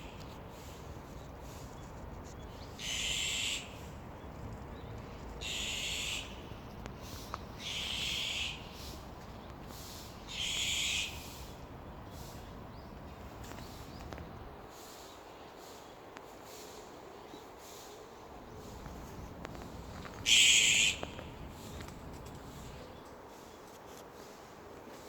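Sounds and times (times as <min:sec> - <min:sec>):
magpie harsh raspy calls: 0:02.8 - 0:03.8, 0:05.4 - 0:06.4, 0:07.6 - 0:08.8, 0:10.2 - 0:11.5, 0:20.2 - 0:21.4.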